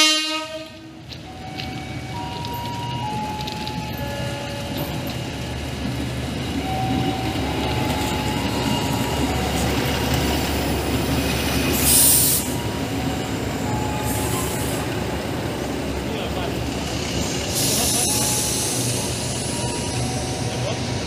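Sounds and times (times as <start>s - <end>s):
railcar engine rumbling: 0.0s - 21.0s
wheels squealing on rails: 6.4s - 21.0s
loud hiss: 11.4s - 12.6s, 17.2s - 20.3s.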